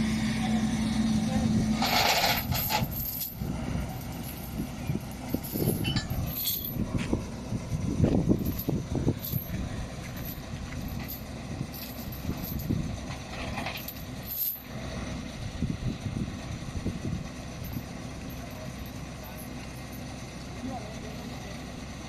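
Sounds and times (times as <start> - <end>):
heavy machinery rumbling: 0.0 - 22.0
light metallic clinks: 4.0 - 6.9.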